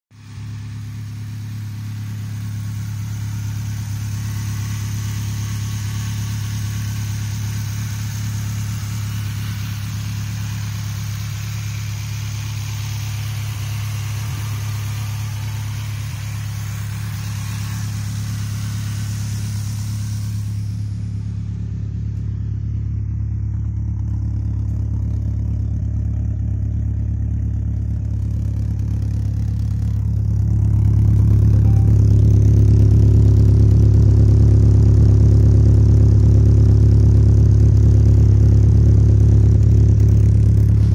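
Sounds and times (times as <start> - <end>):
car engine idling: 0.1 - 40.9
bright hiss and clatter: 0.2 - 22.3.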